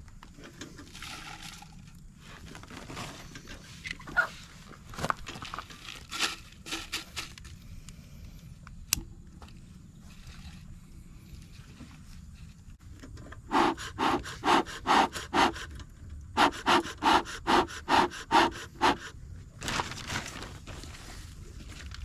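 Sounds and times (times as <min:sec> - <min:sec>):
rhythmic rasping strokes: 0:13.5 - 0:15.8, 0:16.4 - 0:19.2.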